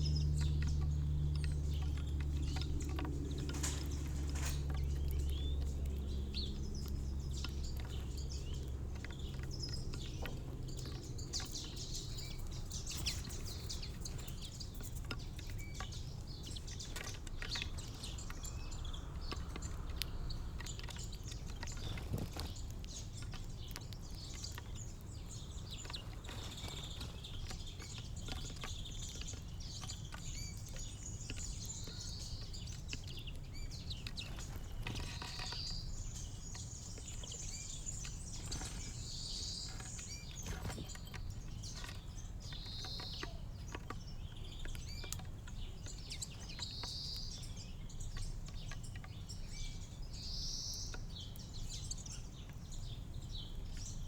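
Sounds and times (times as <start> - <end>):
low background rumble: 0.0 - 43.5
small birds chirping and singing: 0.0 - 54.0.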